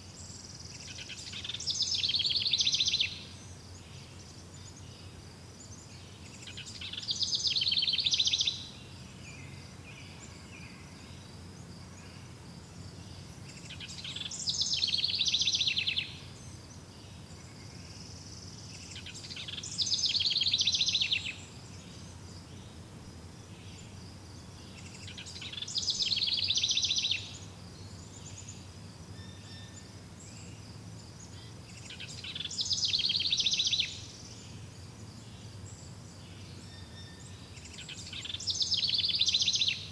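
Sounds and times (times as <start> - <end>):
songbird trilling: 0.8 - 3.2, 6.5 - 8.7, 13.6 - 16.2, 18.8 - 22.8, 24.6 - 27.5, 31.8 - 34.3, 36.7 - 39.9.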